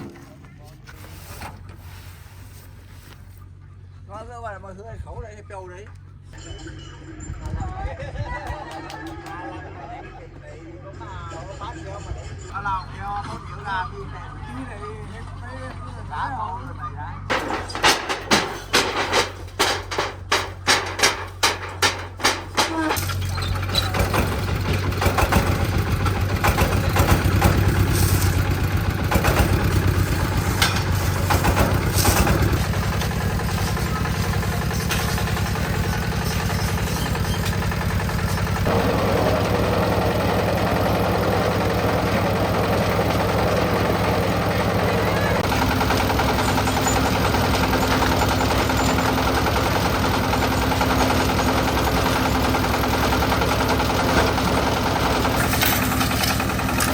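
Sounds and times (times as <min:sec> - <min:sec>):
engine running: 0:17.2 - 0:56.9
knocks and clatter: 0:17.3 - 0:56.9.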